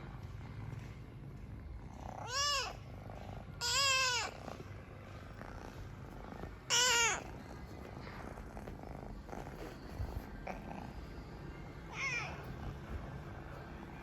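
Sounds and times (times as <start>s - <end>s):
kitten purring: 0.0s - 14.0s
kitten meowing: 2.2s - 2.8s, 3.6s - 4.4s, 6.7s - 7.4s.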